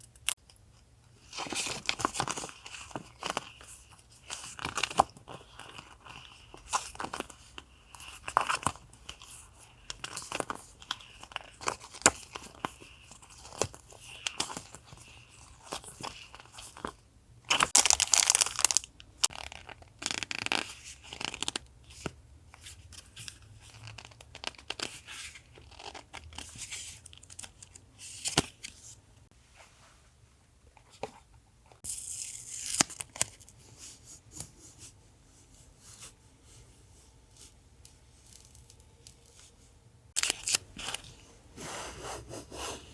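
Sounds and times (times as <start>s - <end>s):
paper packaging rustling and crinkling: 1.2s - 29.0s, 40.2s - 42.9s.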